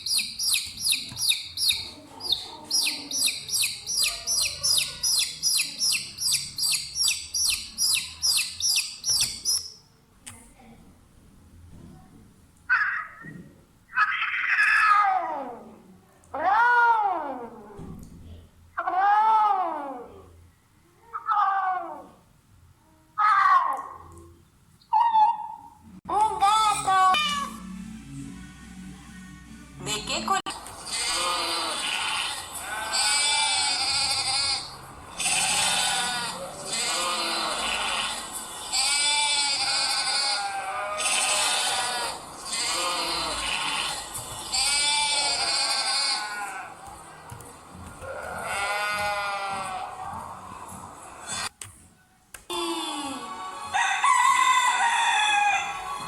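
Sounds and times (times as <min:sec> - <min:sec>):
animal bleating: 0:30.9 - 0:46.8, 0:48.0 - 0:50.2.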